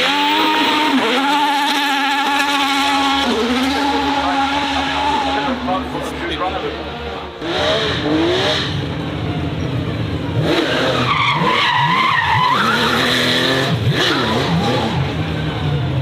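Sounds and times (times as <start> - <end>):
loud tyre squeal: 0.0 - 5.5, 10.6 - 15.3
race car engine revving: 0.0 - 16.0.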